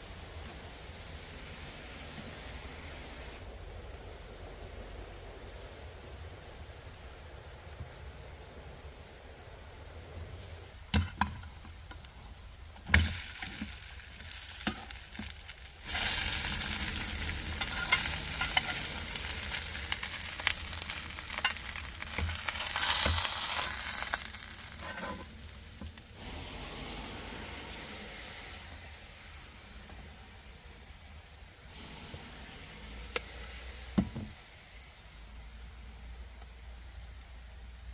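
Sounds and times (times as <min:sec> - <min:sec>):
food sizzling in a frying pan: 0:12.7 - 0:28.9.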